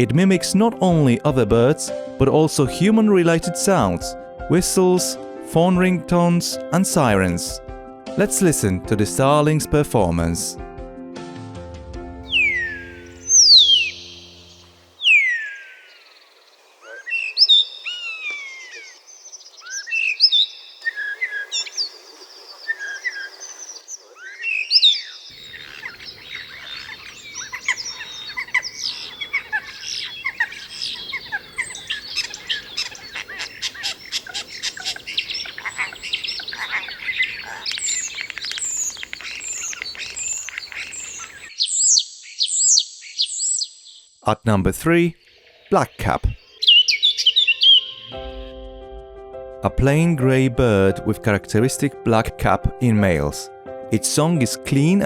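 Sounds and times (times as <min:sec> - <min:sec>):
starling singing: 0:12.3 - 0:16.1, 0:24.2 - 0:43.7, 0:45.6 - 0:48.4
clicks and rattles in birdsong: 0:24.7 - 0:43.6.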